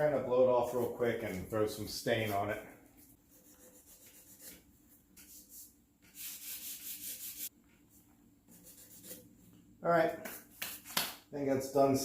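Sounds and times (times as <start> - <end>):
sandpaper rubbing on wood: 3.3 - 4.6, 5.2 - 7.5, 8.5 - 9.2.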